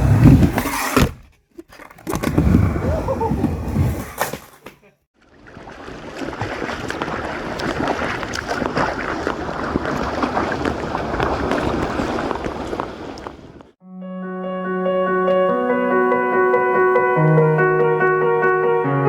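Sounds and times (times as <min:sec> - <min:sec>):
water rushing and splashing: 0:05.2 - 0:13.8.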